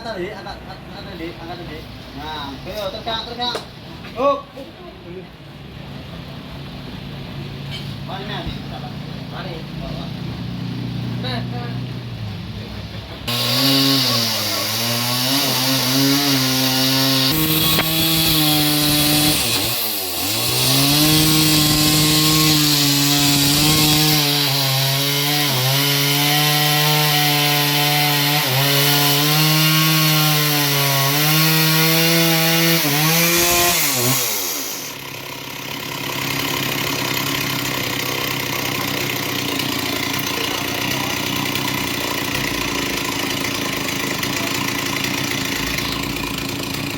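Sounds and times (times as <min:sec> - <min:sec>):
petrol engine driving saw blade: 0:13.2 - 0:46.9
saw cutting through log: 0:13.2 - 0:46.9.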